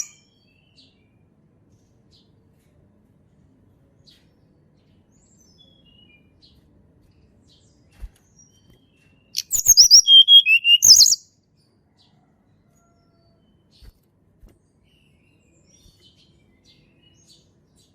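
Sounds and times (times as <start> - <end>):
bird singing: 0.0 - 1.1, 4.8 - 6.6, 7.4 - 11.3.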